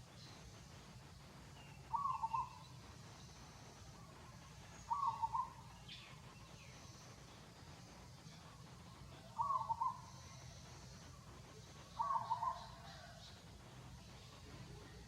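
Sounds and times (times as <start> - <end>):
bird call: 1.7 - 2.7, 4.8 - 6.2, 9.2 - 10.6, 11.9 - 13.4.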